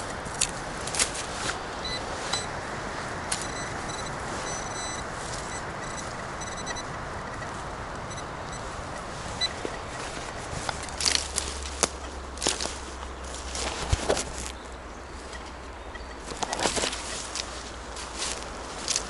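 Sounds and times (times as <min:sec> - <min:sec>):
road traffic: 0:00.0 - 0:19.0
wind: 0:00.0 - 0:19.0
high-pitched chirping tones: 0:03.4 - 0:08.8.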